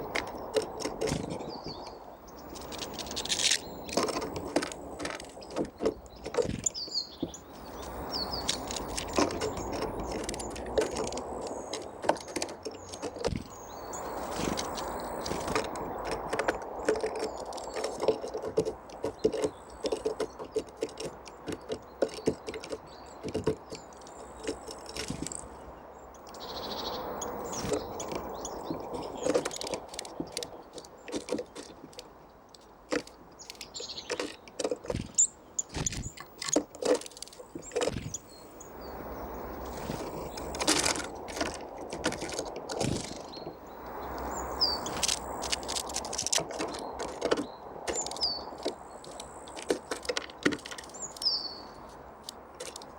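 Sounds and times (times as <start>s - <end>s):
birds pecking taps: 0.0s - 52.9s
high bird chirps: 26.2s - 31.0s, 37.4s - 41.3s, 42.8s - 46.0s, 46.6s - 49.3s, 50.8s - 51.9s.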